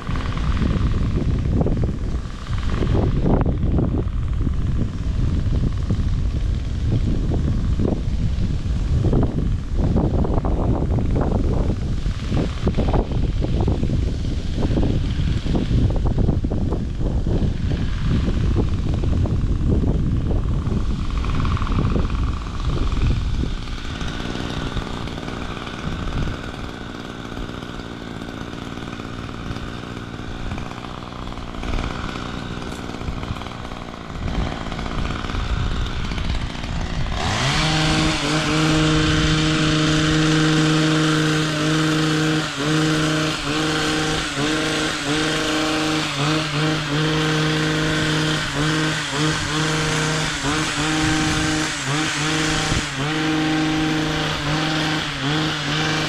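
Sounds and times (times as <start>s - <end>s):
low noisy rumble: 0.0s - 46.0s
chainsaw engine at high revs: 0.0s - 56.0s.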